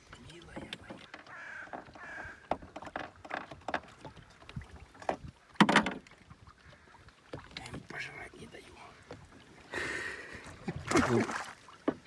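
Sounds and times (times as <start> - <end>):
knocks and clatter in a boat: 0.0 - 9.5, 10.4 - 12.0.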